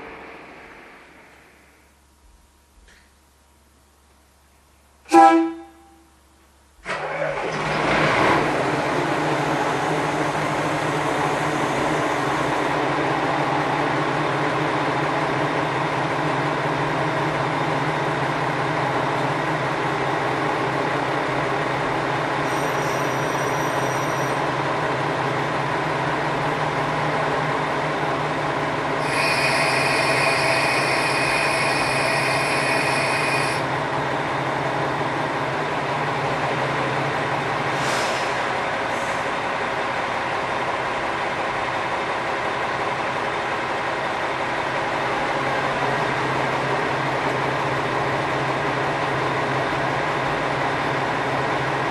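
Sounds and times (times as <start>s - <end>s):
diesel railcar engine droning: 0.0s - 51.9s
wheel squeal: 22.4s - 24.4s, 29.0s - 33.6s.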